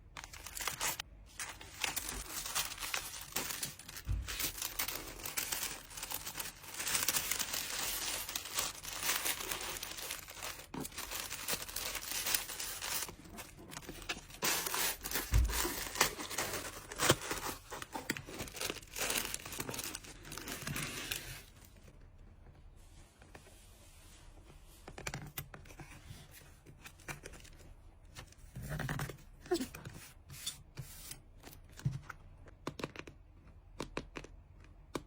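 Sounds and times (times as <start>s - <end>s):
plastic packaging crinkling: 0.1s - 21.4s.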